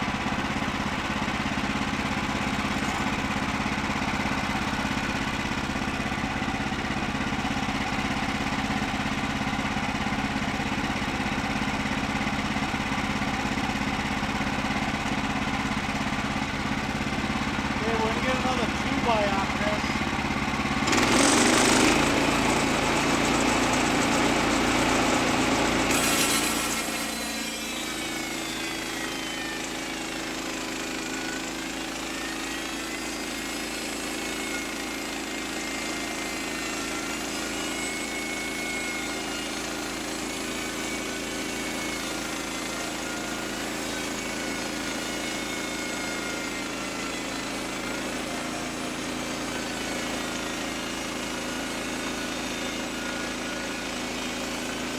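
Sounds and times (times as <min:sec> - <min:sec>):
bandsaw sawmill cutting a log: 0:00.0 - 0:54.9.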